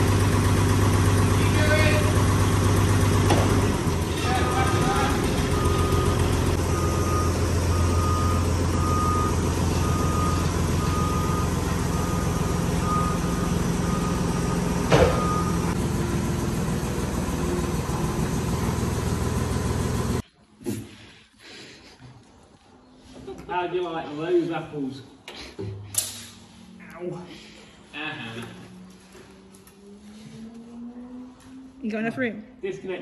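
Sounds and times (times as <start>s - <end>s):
vehicle engine running: 0.0s - 20.2s, 27.6s - 32.5s
reversing alarm beeping: 4.2s - 15.8s.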